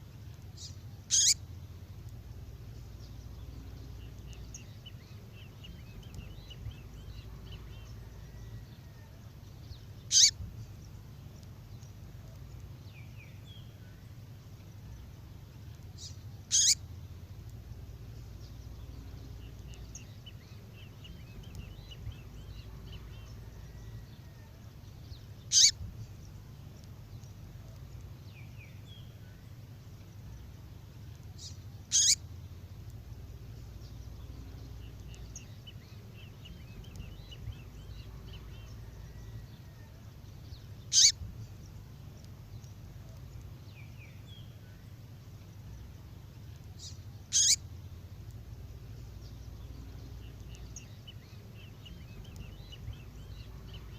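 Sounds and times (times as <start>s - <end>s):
faint high twittering: 0.5s - 1.4s, 2.4s - 11.0s, 11.8s - 16.8s, 25.1s - 26.4s, 31.3s - 32.3s, 33.2s - 44.9s, 46.8s - 47.7s
songbird downward-sweeping call: 0.6s - 1.5s, 10.0s - 10.4s, 16.0s - 16.8s, 25.2s - 25.9s, 31.4s - 32.2s, 34.4s - 41.5s, 46.8s - 47.7s.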